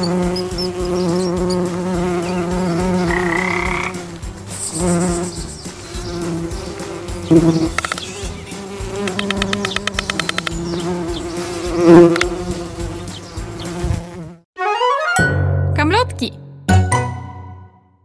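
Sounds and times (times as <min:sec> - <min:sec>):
cartoon insects buzzing: 0:00.0 - 0:14.4
fast run of clicks: 0:06.6 - 0:10.8.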